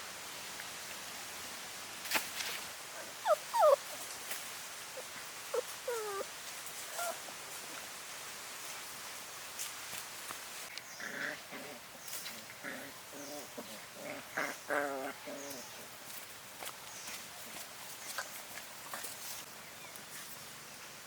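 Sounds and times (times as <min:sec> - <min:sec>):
puppies whimpering: 0:03.1 - 0:04.0, 0:04.9 - 0:06.3, 0:06.9 - 0:07.2.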